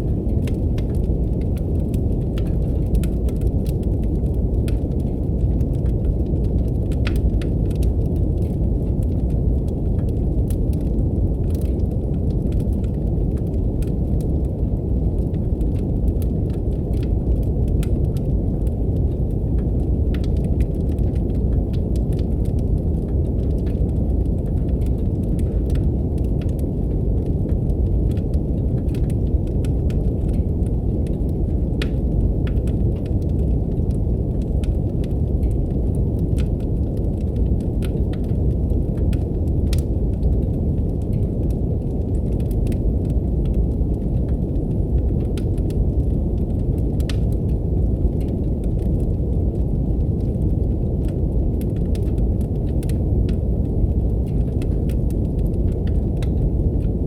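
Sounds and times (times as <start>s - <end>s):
deep brown noise: 0.0s - 57.0s
wood fire crackling: 0.0s - 57.0s.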